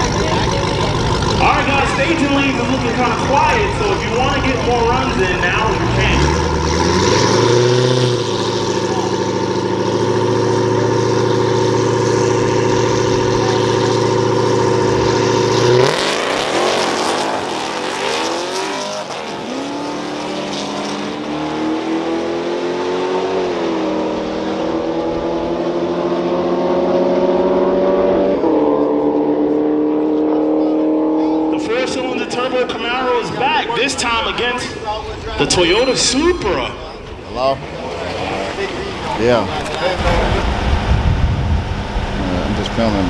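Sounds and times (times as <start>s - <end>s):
race car engines idling: 0.0s - 21.4s, 29.2s - 43.0s
race car accelerating: 0.0s - 43.0s.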